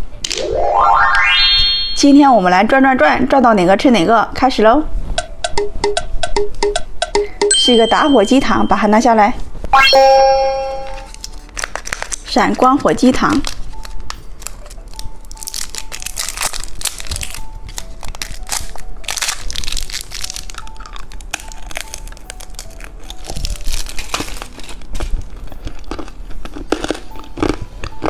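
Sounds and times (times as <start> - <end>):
light background melody: 0.0 - 28.0
plastic packaging crinkling: 11.1 - 12.3, 13.4 - 28.0.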